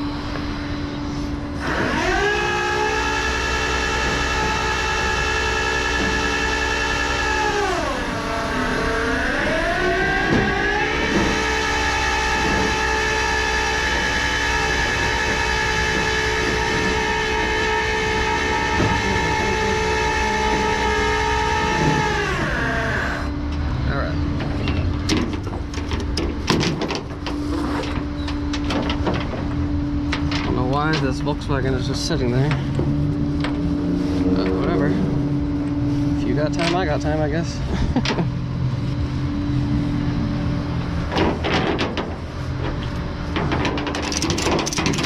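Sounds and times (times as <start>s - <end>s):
truck engine running: 0.0s - 23.5s.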